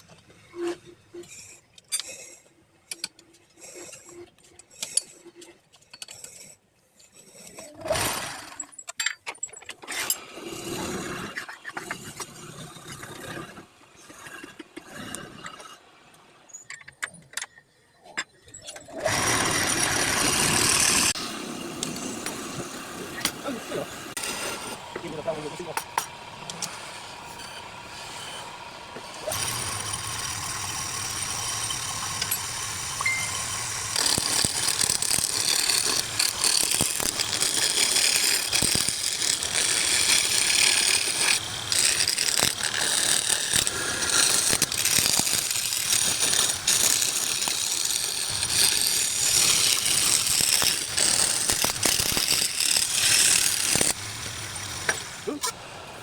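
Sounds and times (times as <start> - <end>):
lathe tool scraping wood: 18.9 - 56.0
lathe motor hum: 19.0 - 56.0.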